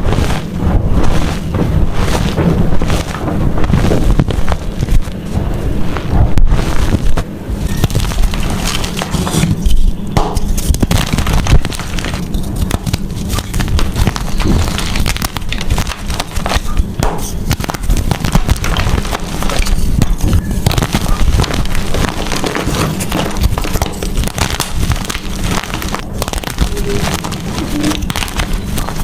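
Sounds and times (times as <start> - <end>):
chalk crushed by hand: 6.6 - 29.0.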